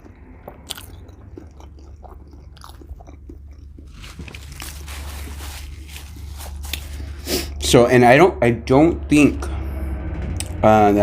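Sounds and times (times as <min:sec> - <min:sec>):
person chewing food: 0:00.0 - 0:07.6
low steady hum: 0:00.0 - 0:11.0.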